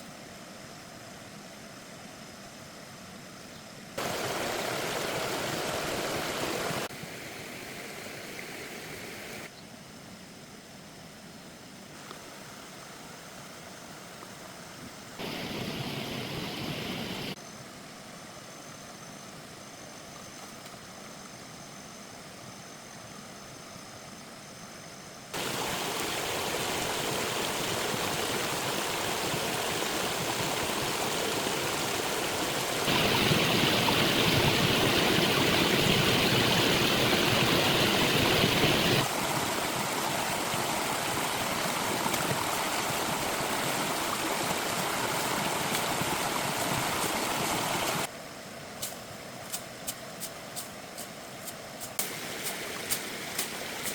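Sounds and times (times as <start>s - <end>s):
rushing stream water: 4.0s - 9.5s, 15.2s - 17.4s, 25.3s - 53.9s.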